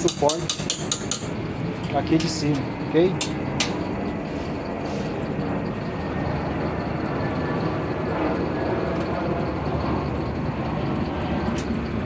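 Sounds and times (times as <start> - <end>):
steady background rumble: 0.0 - 12.0.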